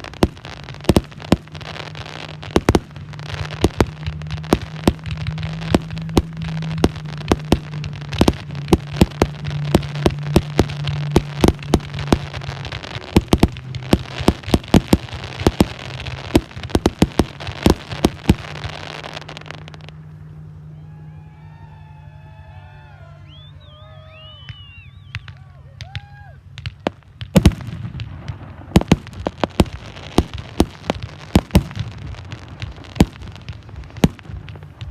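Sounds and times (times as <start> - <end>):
fireworks bangs: 0.0 - 21.7, 22.4 - 34.9
fireworks crackling: 0.0 - 34.9
faint wavering whistles: 20.2 - 25.5.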